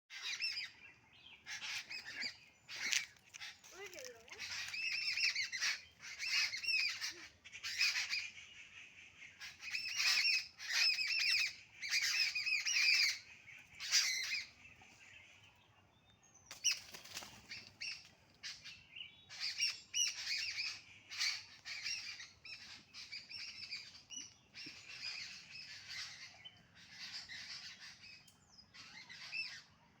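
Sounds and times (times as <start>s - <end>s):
bird chirping and calling: 0.1s - 15.6s, 16.4s - 29.7s.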